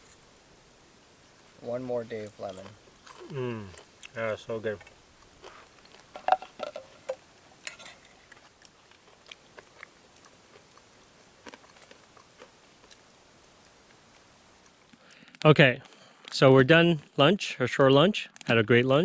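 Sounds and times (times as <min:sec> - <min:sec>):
person chewing: 0:02.4 - 0:15.1.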